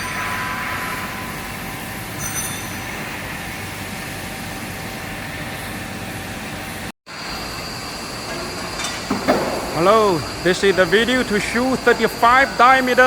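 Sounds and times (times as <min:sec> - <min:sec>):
industrial machinery running: 0:00.0 - 0:13.0.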